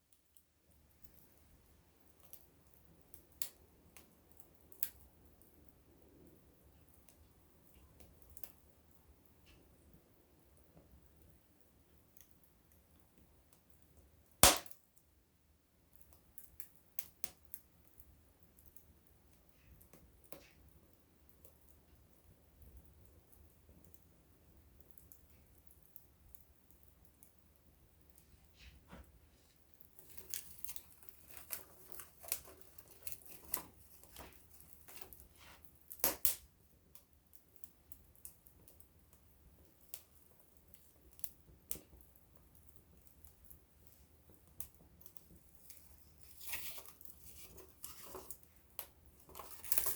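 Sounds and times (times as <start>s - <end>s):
campfire crackling: 0.1s - 15.1s, 15.7s - 49.9s
sharp pop of fire: 14.4s - 14.8s.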